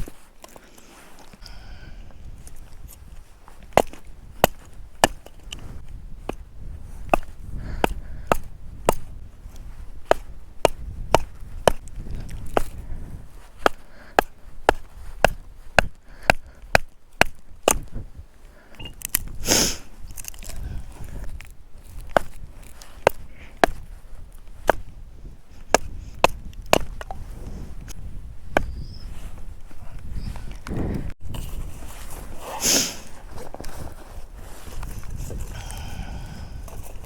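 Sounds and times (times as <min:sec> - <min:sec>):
wood crunching: 0:02.4 - 0:37.0
axe chopping wood: 0:03.6 - 0:05.3, 0:07.0 - 0:09.0, 0:10.0 - 0:12.8, 0:13.6 - 0:17.9, 0:25.7 - 0:27.1.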